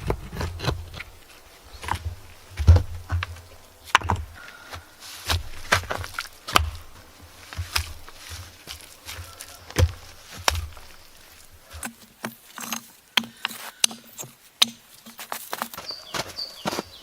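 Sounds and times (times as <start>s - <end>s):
low thuds: 1.8s - 11.9s.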